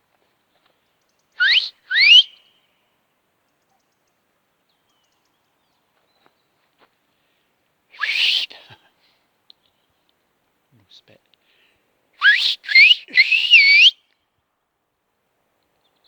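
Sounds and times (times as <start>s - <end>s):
man whistling rising calls: 1.4s - 2.5s, 8.0s - 8.5s, 12.2s - 14.0s.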